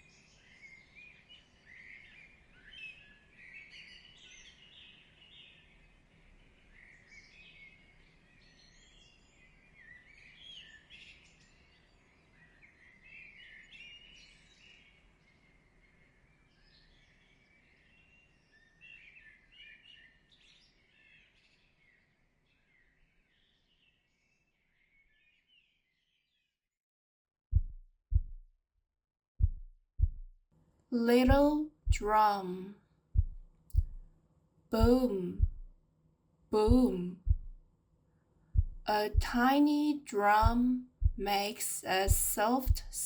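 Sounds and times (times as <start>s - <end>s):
small birds chirping: 0.0s - 26.2s.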